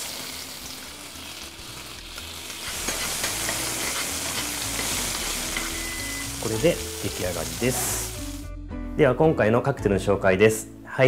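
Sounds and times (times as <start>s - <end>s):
food sizzling in frying pan: 0.0s - 8.5s.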